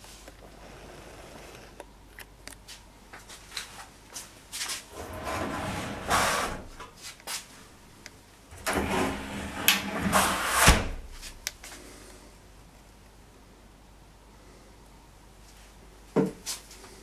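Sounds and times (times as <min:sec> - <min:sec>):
scraping and rustling: 0:02.7 - 0:07.6, 0:08.6 - 0:11.5.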